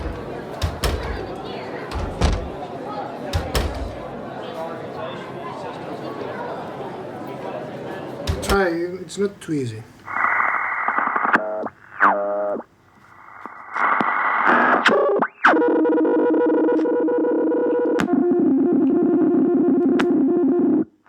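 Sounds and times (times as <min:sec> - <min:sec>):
radio-like hiss: 0:09.2 - 0:15.3.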